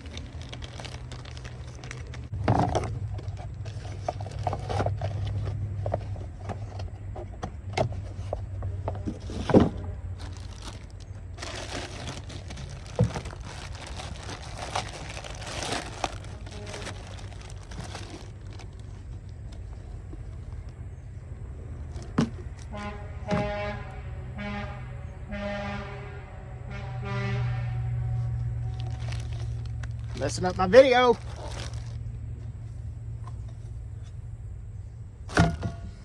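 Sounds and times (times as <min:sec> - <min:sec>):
packaging crinkling and rustling: 0:00.0 - 0:07.3, 0:07.9 - 0:20.9, 0:28.3 - 0:32.5
steady low hum: 0:00.0 - 0:36.0
parts knocking when set down: 0:02.3 - 0:10.0, 0:35.3 - 0:36.0.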